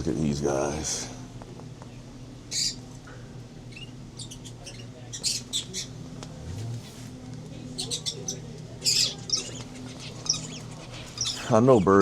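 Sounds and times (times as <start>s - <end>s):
steady low hum: 0.0s - 12.0s
pet birds chirping and squawking: 1.9s - 2.9s, 3.6s - 7.0s, 7.6s - 12.0s.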